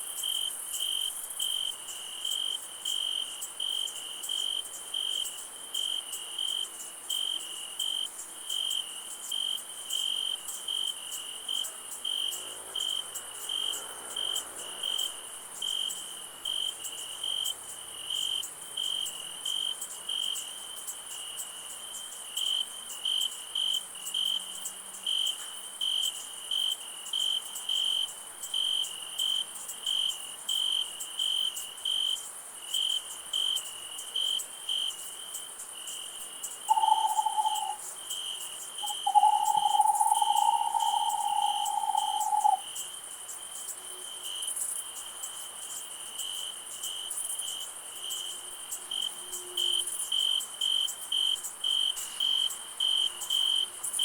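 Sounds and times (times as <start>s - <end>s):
crickets chirping: 0.0s - 54.0s
high insect hiss: 0.0s - 54.0s
mid-pitched animal calls: 36.7s - 37.8s, 38.8s - 42.6s.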